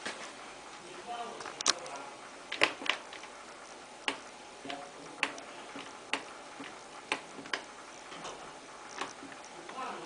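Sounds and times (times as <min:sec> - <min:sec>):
washing machine control clicks: 0:04.0 - 0:08.4.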